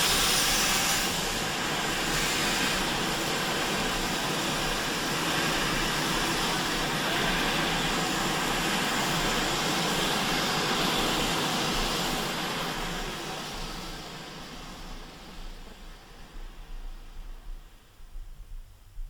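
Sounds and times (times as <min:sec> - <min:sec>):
train running noise: 0:00.0 - 0:19.0.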